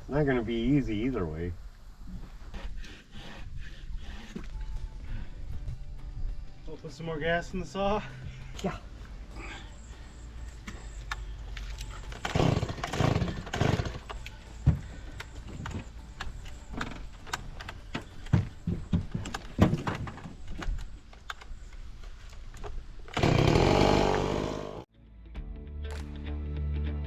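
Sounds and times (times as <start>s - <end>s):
chainsaw running: 11.9s - 14.4s, 23.1s - 24.9s.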